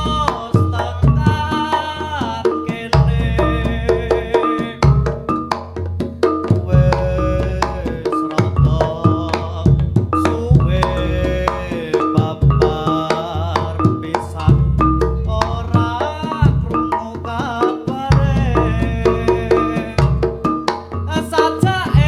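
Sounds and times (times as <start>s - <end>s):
deep bass notes: 0.0s - 22.0s
hand drum patterns: 0.0s - 22.0s
wavering melody line: 0.0s - 22.0s.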